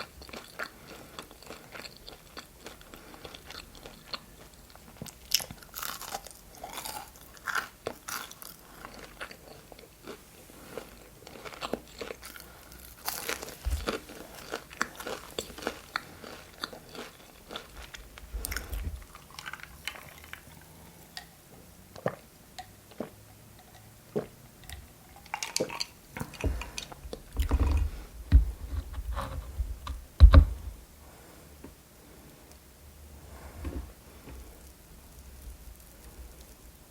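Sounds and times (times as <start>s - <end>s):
person chewing crunchy food: 0.0s - 30.8s
low thumps: 27.4s - 30.8s.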